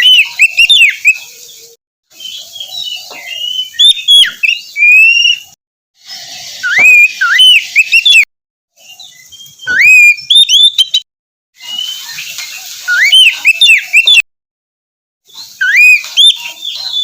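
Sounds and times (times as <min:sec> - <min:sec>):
bird whistling song: 0:00.0 - 0:11.0, 0:11.6 - 0:14.2, 0:15.3 - 0:17.0.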